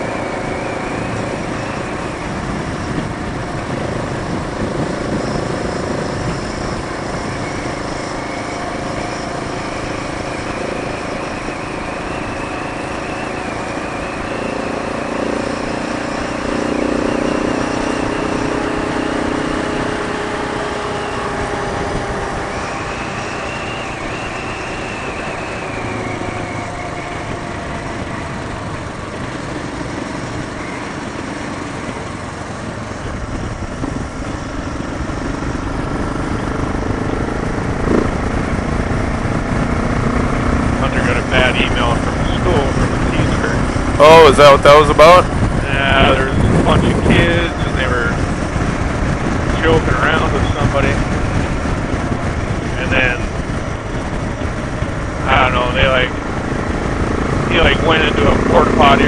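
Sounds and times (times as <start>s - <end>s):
motorcycle engine running: 0.0s - 59.0s
rush of riding noise: 0.0s - 59.0s.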